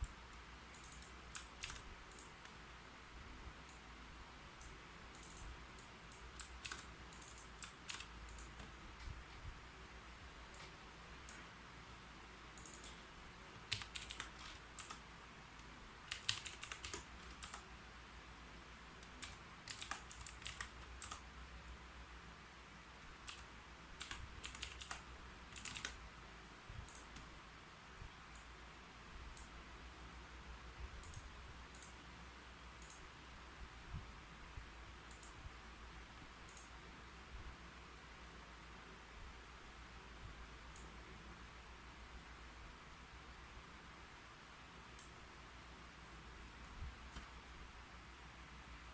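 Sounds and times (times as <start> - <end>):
typing on a computer keyboard: 0.0 - 2.6, 4.6 - 8.8, 12.6 - 13.0, 13.6 - 15.0, 16.0 - 17.7, 19.0 - 21.3, 23.2 - 26.0, 26.8 - 27.3.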